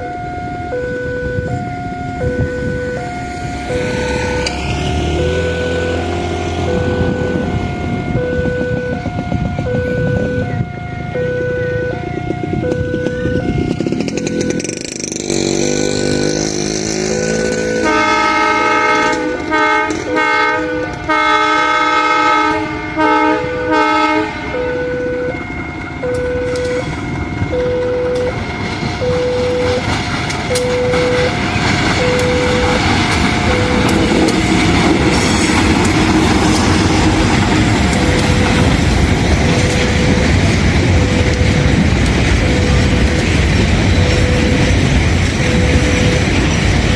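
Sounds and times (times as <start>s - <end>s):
level crossing alarm two-note tone: 0.0s - 22.4s, 23.0s - 29.9s, 30.5s - 35.2s, 37.8s - 46.4s
passing train noise: 0.0s - 46.9s
train horn blasts: 3.6s - 12.1s, 12.7s - 25.4s.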